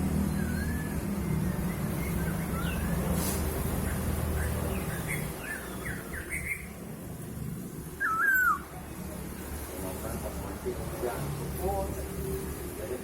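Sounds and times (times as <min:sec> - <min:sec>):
bird whistled chirps: 0:00.3 - 0:03.0, 0:04.4 - 0:06.7, 0:08.0 - 0:08.7.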